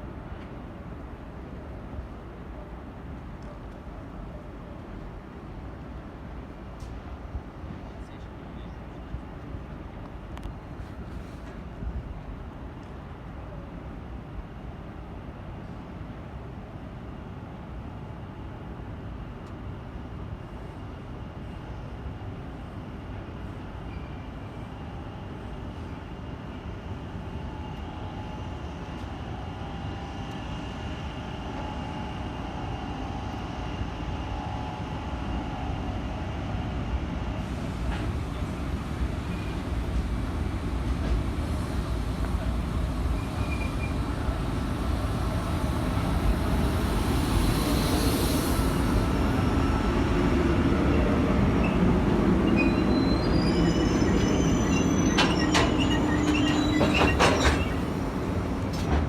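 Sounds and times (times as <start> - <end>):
train wheel squeals: 23.8 - 26.2, 43.0 - 44.8, 45.4 - 58.9
train rumbling: 24.8 - 59.0.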